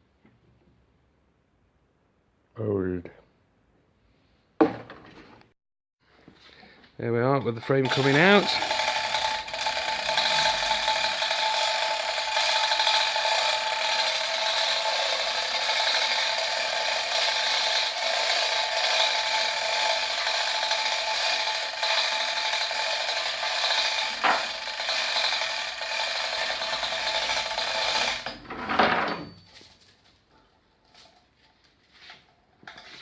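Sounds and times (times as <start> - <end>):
hoist whirring: 7.5 - 29.5.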